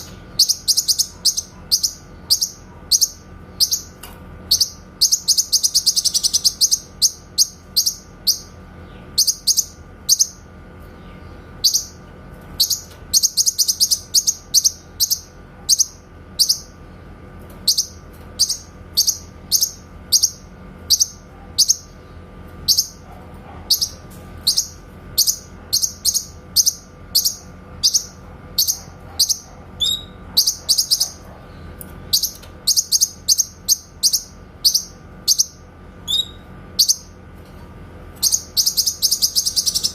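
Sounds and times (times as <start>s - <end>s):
bird whistled song: 0.4s - 8.5s, 12.6s - 16.7s, 23.8s - 31.2s, 32.1s - 37.1s, 38.2s - 39.9s.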